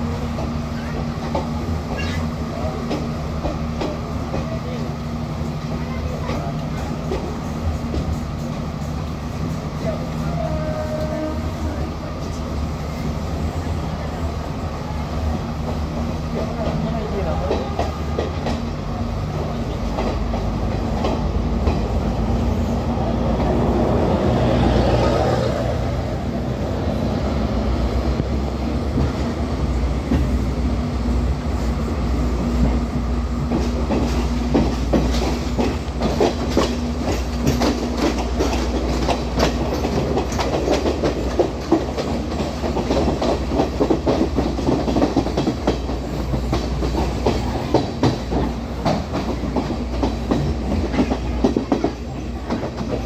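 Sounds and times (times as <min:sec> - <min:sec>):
train engine hum: 0:00.0 - 0:53.0
wheels clicking over rail joints: 0:32.4 - 0:53.0.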